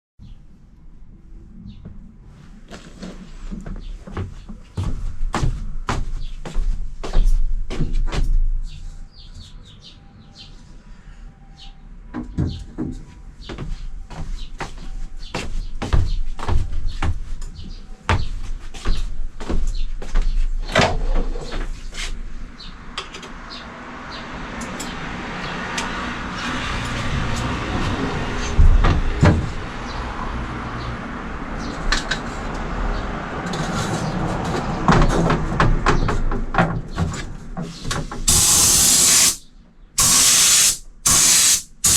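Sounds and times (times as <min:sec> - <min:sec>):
knocks and clatter of fitting-out work: 0:07.2 - 0:08.6, 0:12.2 - 0:14.8, 0:26.8 - 0:29.6, 0:33.4 - 0:38.4.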